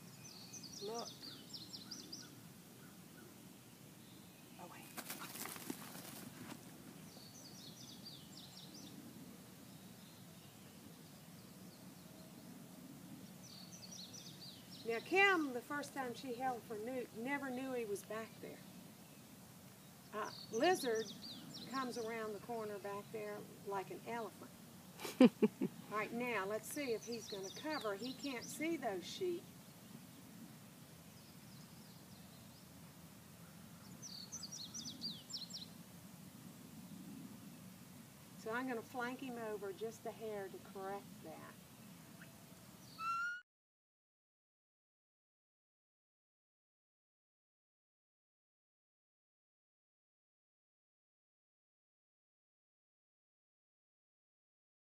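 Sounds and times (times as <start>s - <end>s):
small bird chirping: 0.0s - 3.3s, 18.1s - 22.2s, 33.4s - 35.8s, 40.9s - 43.4s
faint outdoor background: 0.0s - 43.5s.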